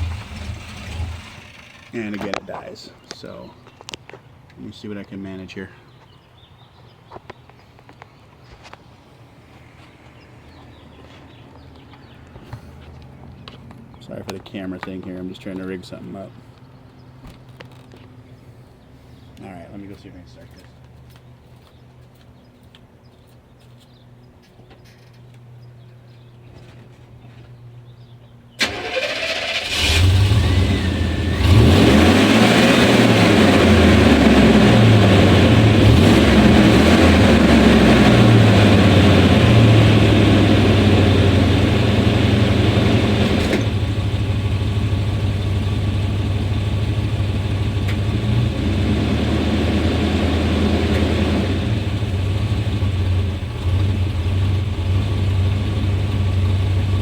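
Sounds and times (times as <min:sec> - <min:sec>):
engine running with rough idle: 0:00.0 - 0:02.3, 0:28.6 - 0:57.0
engine cranking: 0:00.0 - 0:02.4, 0:28.6 - 0:39.7.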